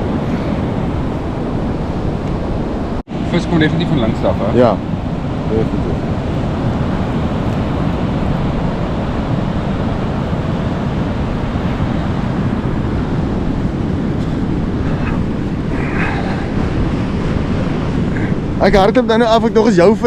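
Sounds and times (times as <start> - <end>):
surf: 0.0 - 20.0
wind buffeting microphone: 0.0 - 20.0.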